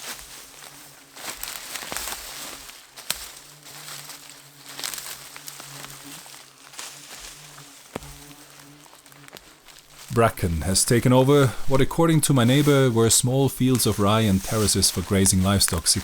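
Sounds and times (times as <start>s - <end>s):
dry bracken rustling and crunching: 0.0s - 16.0s
steady low buzz: 9.7s - 16.0s.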